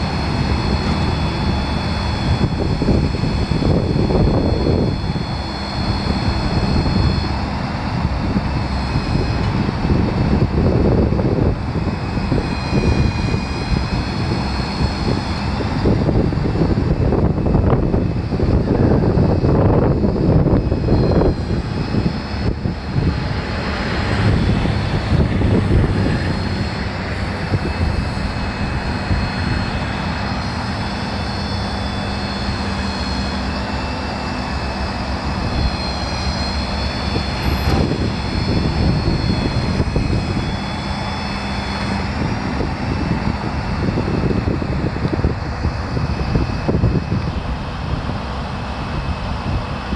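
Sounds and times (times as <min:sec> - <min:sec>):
diesel truck engine running: 0:00.0 - 0:49.9
high whining tones: 0:00.0 - 0:49.9.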